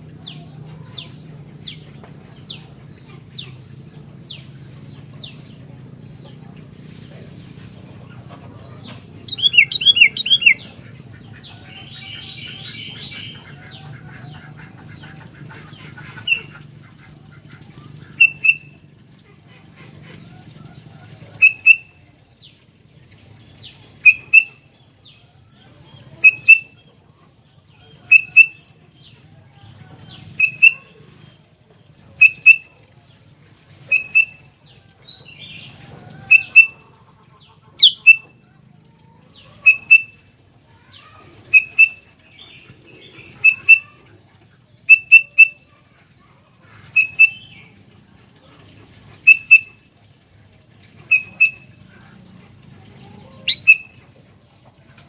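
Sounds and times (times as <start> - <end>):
bird sharp clipped calls: 8.8 - 16.6, 18.0 - 18.8, 21.4 - 21.9, 23.6 - 24.6, 26.2 - 26.7, 28.1 - 28.6, 30.1 - 30.9, 32.2 - 32.6, 33.9 - 34.4, 36.3 - 36.8, 37.8 - 38.3, 39.6 - 40.2, 41.5 - 42.0, 43.2 - 43.9, 44.9 - 45.6, 46.9 - 47.7, 49.2 - 49.8, 51.0 - 51.7, 53.5 - 54.0.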